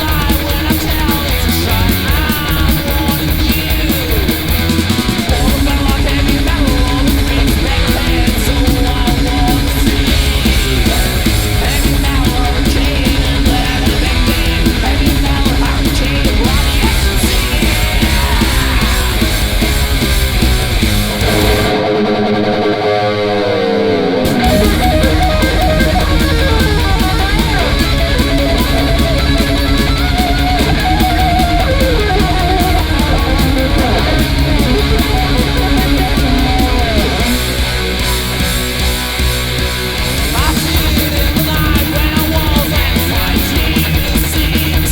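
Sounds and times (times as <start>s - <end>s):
thrash metal band playing: 0.0s - 44.9s
lone guitar sliding notes: 21.2s - 38.0s.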